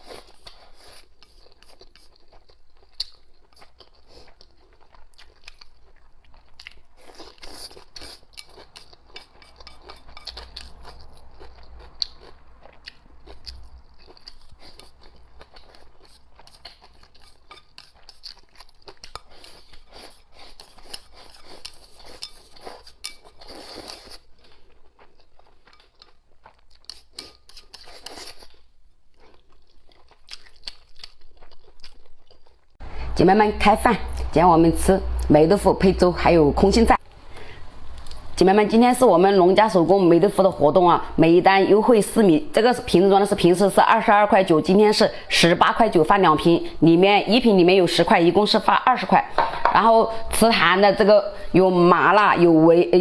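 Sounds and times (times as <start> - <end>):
crunching and chewing food: 0.0 - 32.8, 37.0 - 38.4.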